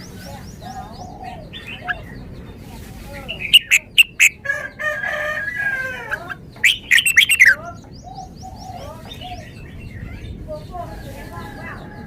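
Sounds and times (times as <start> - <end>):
bird singing whistled notes: 3.3 - 4.4, 6.6 - 8.7
rooster crowing: 4.4 - 6.4.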